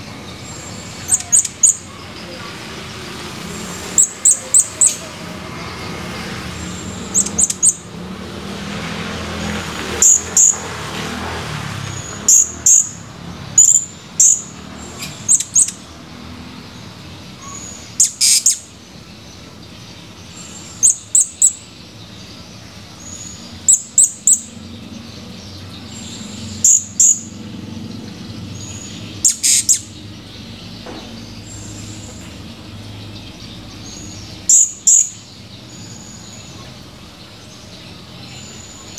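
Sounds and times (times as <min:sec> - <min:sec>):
parrot high-pitched chirps: 0:01.0 - 0:02.0, 0:04.0 - 0:05.0, 0:07.1 - 0:07.8, 0:10.0 - 0:10.6, 0:17.4 - 0:18.7, 0:29.2 - 0:29.9.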